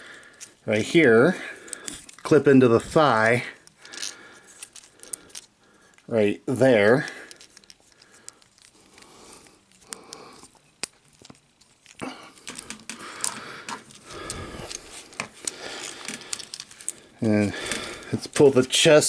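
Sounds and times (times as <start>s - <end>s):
plastic pieces clicking into place: 3.6s - 6.1s, 7.1s - 9.1s, 9.7s - 19.0s
plastic rubbing and scraping: 10.4s - 19.0s.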